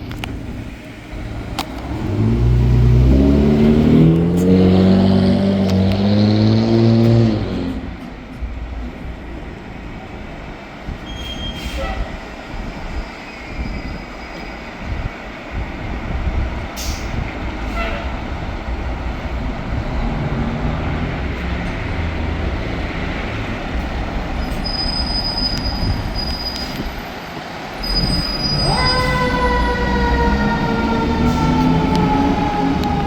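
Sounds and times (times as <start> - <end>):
fire truck siren: 27.8 - 33.0.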